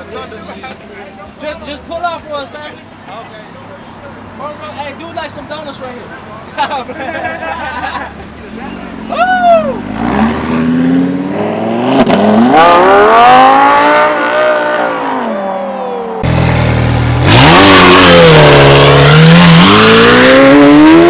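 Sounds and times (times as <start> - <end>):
car engine revving: 8.1 - 21.0.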